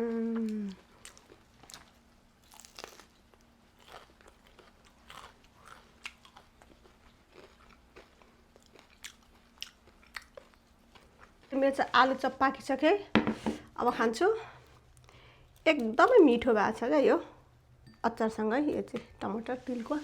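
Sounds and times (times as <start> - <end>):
chewing crispy fried food: 0.5 - 12.0.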